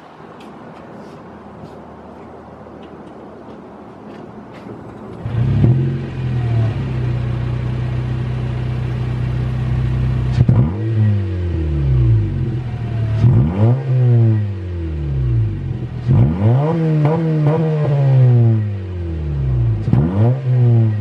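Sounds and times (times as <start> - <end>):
car engine idling and revving: 4.6 - 21.0.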